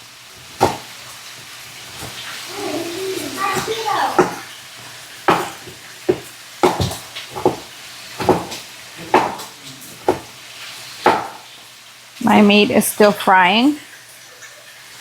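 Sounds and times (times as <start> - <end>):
steak sizzling in a pan: 0.0 - 15.0
sharp kitchen knocks: 0.5 - 0.9, 3.4 - 4.5, 5.2 - 10.4, 11.0 - 11.5.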